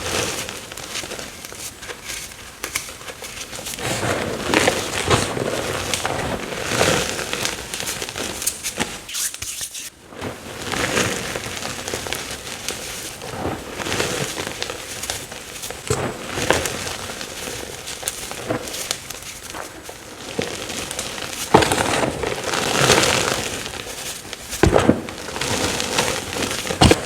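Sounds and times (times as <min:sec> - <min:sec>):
chalk crushed by hand: 0:06.8 - 0:09.9.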